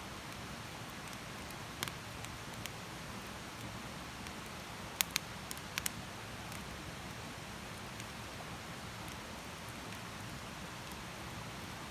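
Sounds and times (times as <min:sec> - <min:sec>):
campfire hissing and crackling: 0:00.0 - 0:11.9
fire popping: 0:01.0 - 0:02.0, 0:05.0 - 0:06.6.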